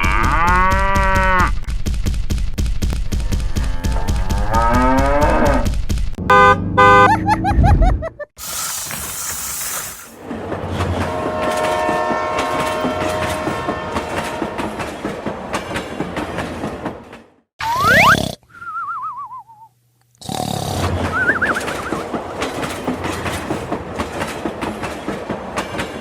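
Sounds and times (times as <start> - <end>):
mooing call rising in pitch: 3.6 - 5.6
loud horn blasts: 6.2 - 7.1, 11.0 - 14.8
train rumbling: 8.4 - 17.4, 20.8 - 26.0.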